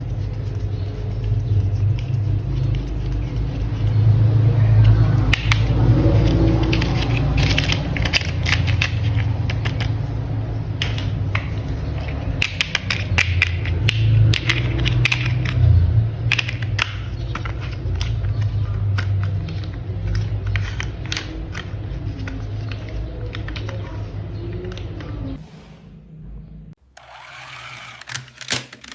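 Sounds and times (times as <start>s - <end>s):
plastic toy parts clicking: 5.3s - 10.0s, 12.3s - 23.9s, 27.0s - 28.9s.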